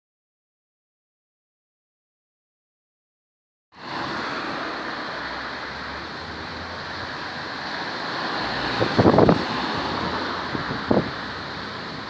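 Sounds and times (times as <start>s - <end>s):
strong gusty wind: 3.8s - 12.0s
wind buffeting microphone: 6.6s - 12.0s.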